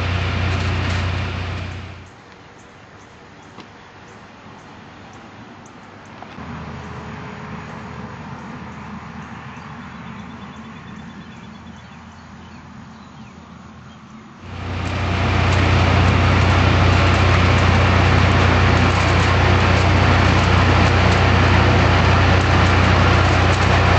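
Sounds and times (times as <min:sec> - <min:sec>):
harvester engine running: 0:00.0 - 0:02.1, 0:14.4 - 0:23.9.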